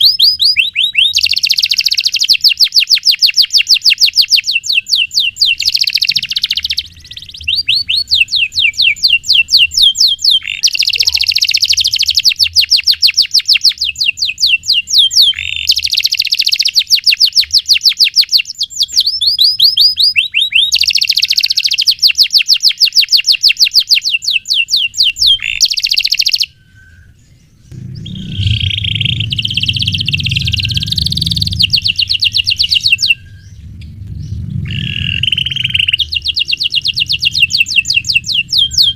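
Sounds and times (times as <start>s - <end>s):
canary trilling: 0.0s - 38.9s
low rumble: 26.8s - 38.9s.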